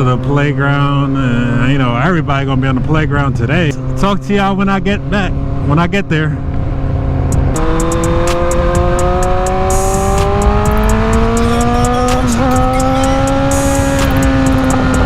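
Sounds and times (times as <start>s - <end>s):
motorcycle engine running: 6.4s - 15.0s.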